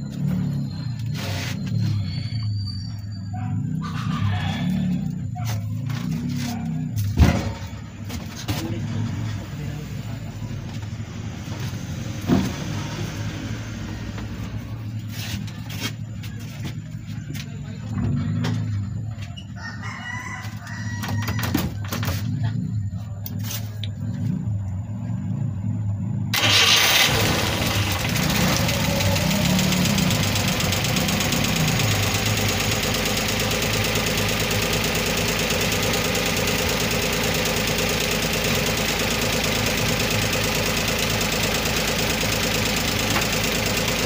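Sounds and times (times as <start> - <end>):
engine cranking and starting: 26.3 - 44.0.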